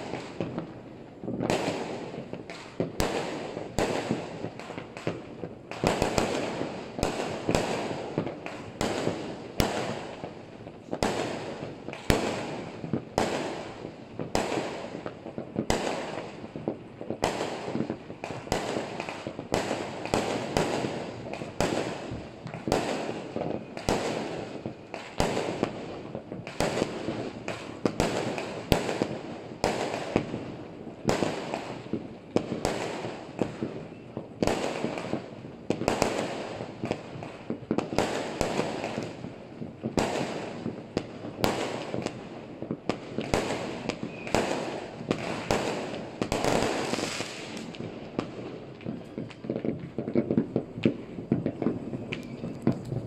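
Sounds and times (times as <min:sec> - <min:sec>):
distant fireworks din: 0:00.0 - 0:53.0
fireworks shells bursting: 0:49.0 - 0:53.0.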